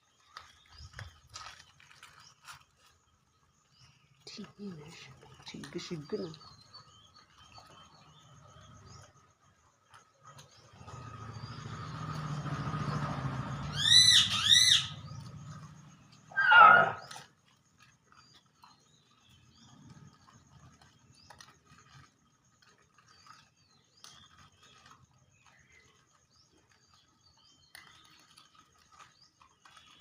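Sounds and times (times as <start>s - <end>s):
dog yelping: 13.8s - 15.0s, 16.3s - 17.2s
dog barking: 16.4s - 17.0s.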